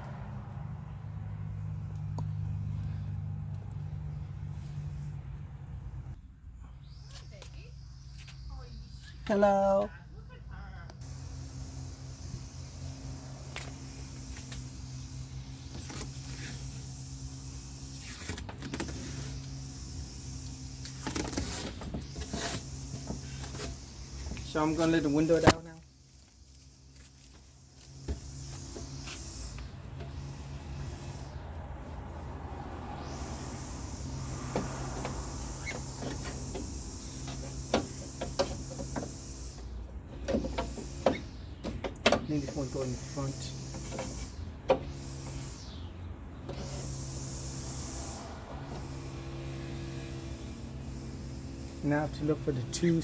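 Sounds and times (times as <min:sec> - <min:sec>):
power window motor humming: 0:11.0 - 0:25.6, 0:26.3 - 0:53.0.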